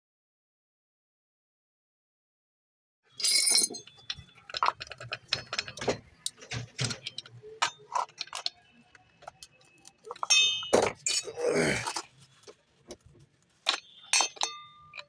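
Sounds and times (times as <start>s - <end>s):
small hard parts clinking: 3.1s - 15.0s.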